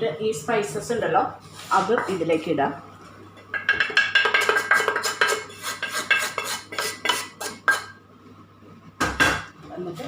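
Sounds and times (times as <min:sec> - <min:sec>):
spoon scraping against pan: 0:04.2 - 0:08.0.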